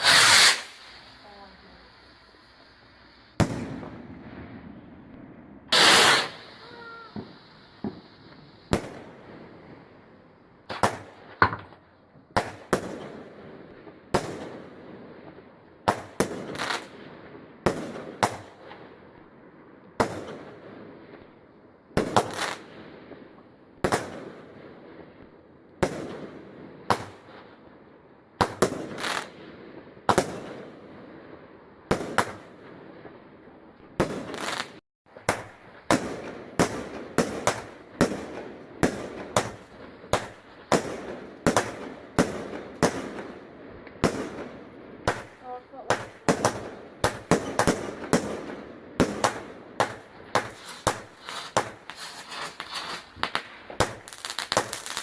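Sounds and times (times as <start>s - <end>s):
fireworks exploding: 0.0s - 55.0s.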